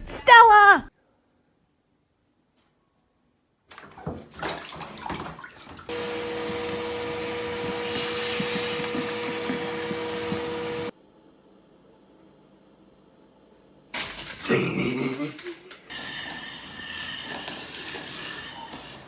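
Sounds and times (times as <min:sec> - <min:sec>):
motor whining with rushing air: 0:05.9 - 0:10.9.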